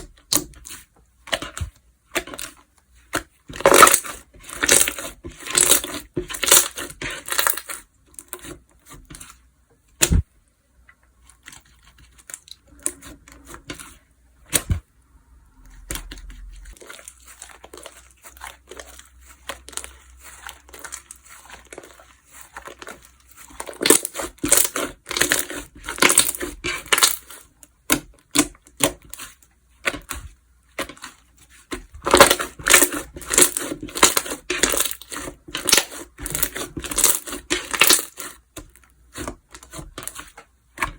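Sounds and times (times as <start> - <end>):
slime crackling and popping: 15.8 - 29.0, 32.1 - 38.4.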